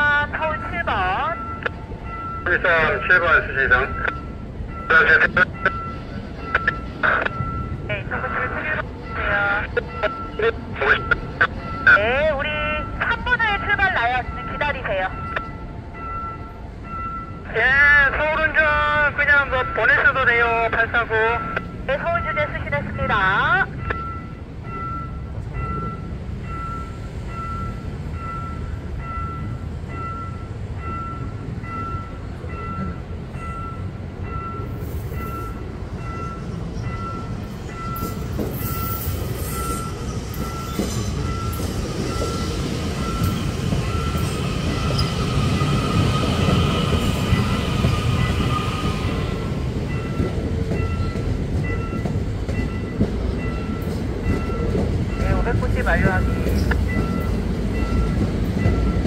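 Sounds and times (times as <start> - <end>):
train wheels rumbling: 0.0 - 59.0
high wheel squeal: 34.8 - 49.3.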